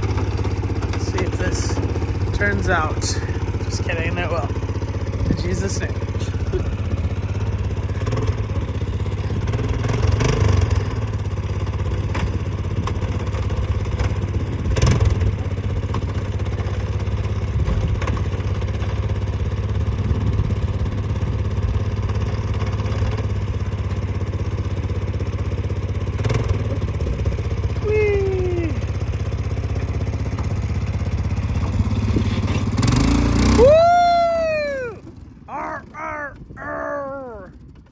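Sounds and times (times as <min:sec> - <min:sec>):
atv engine running: 0:00.0 - 0:37.9.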